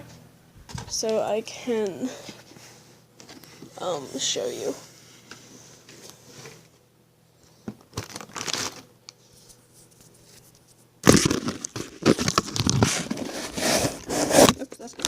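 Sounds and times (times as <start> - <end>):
crinkling and rustling: 7.6 - 15.0.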